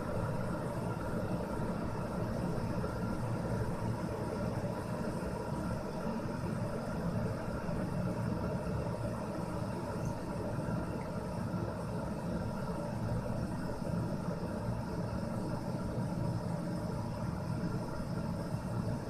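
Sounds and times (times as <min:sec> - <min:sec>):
electric kettle heating water: 0:00.0 - 0:19.0.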